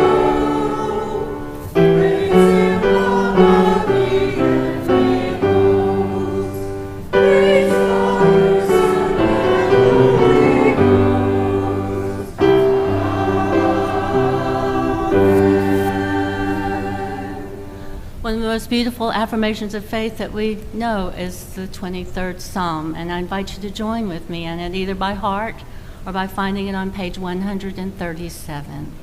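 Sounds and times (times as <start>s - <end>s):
church choir singing: 0.0s - 18.0s.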